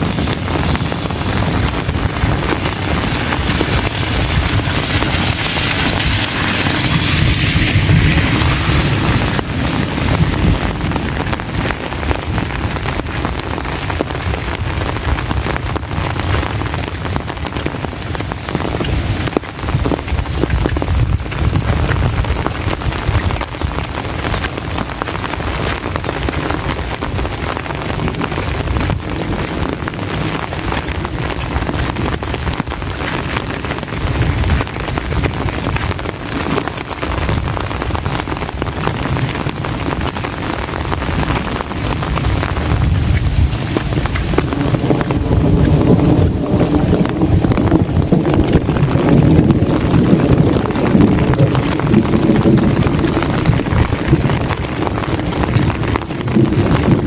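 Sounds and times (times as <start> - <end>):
low rumble: 0.0 - 16.6, 37.1 - 57.0
heavy rain falling: 0.0 - 57.0
wind buffeting microphone: 0.0 - 57.0.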